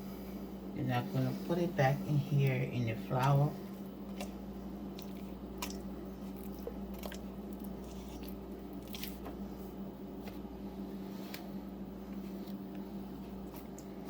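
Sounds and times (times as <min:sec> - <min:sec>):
steady low hum: 0:00.0 - 0:14.0
chicken squishing in flour: 0:01.4 - 0:14.0.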